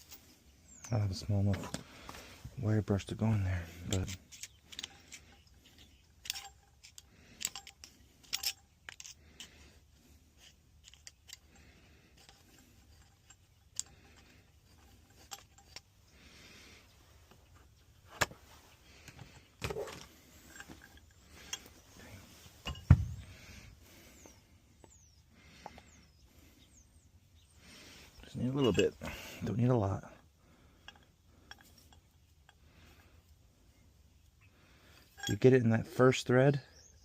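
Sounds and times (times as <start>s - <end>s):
metal fittings clinking: 3.1s - 9.6s, 10.4s - 15.9s, 19.0s - 25.0s, 28.2s - 30.0s, 30.7s - 33.0s, 34.9s - 35.8s
deep thump: 22.9s - 23.2s.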